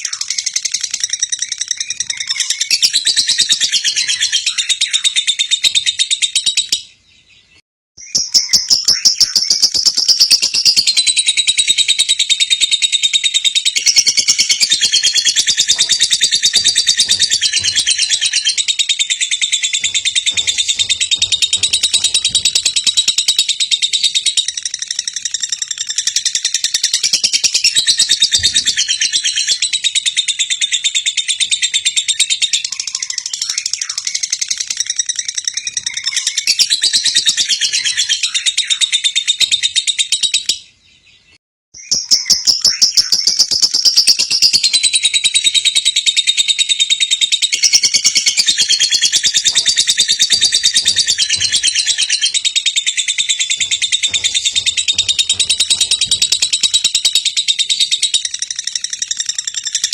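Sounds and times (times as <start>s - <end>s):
lovebird chattering trill: 8.1s - 31.0s.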